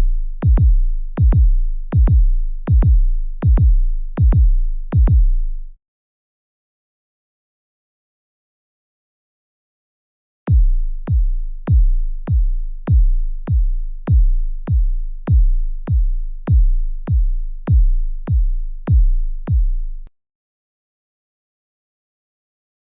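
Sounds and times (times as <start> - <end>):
deep electronic bass pulse: 0.0 - 5.7, 10.5 - 20.1.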